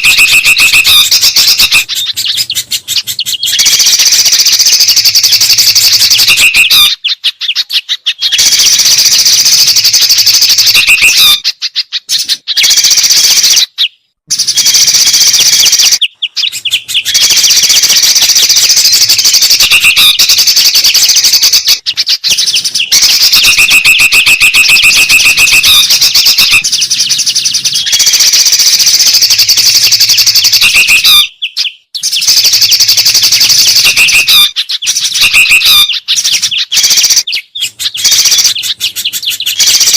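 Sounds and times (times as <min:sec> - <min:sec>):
short whistled bird notes: 0:00.0 - 0:09.8, 0:12.1 - 0:28.8
songbirds chirping and trilling: 0:00.0 - 0:39.9.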